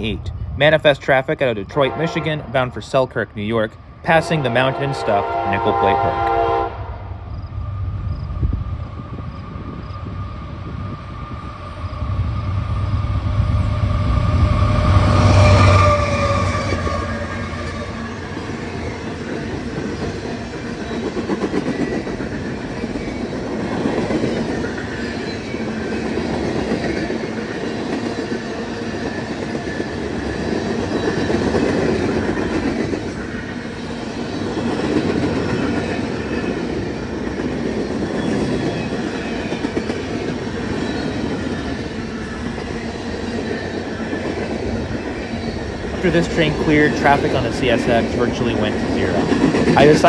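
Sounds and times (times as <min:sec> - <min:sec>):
train wheels clattering on rails: 0:08.1 - 0:50.0.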